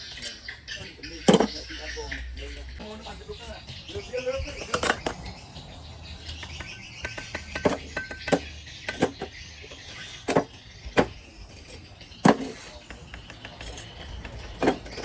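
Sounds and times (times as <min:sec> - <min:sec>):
sharp knocks of bricklaying: 0:00.1 - 0:01.8, 0:06.3 - 0:09.3, 0:10.2 - 0:15.0.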